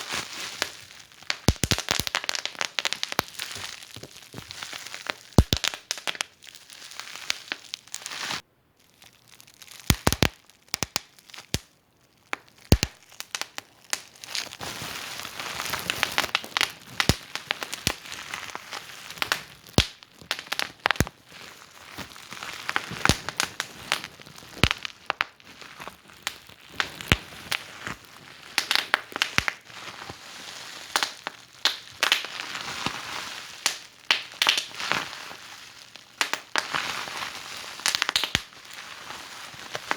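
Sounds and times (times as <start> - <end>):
wood fire crackling and popping: 0.0 - 8.4, 9.6 - 11.7, 12.3 - 30.1, 30.9 - 38.8.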